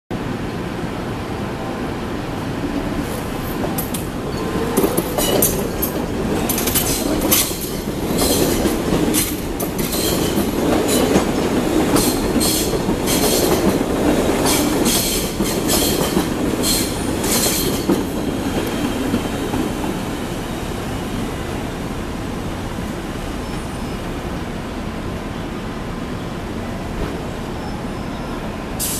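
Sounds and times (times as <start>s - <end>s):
train rumbling over rails: 0.1s - 28.9s
wheel clacks over rail joints: 3.1s - 18.9s.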